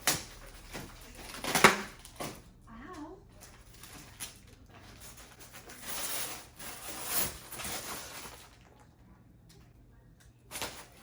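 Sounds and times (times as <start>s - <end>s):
packaging rustling and scraping: 3.6s - 8.6s.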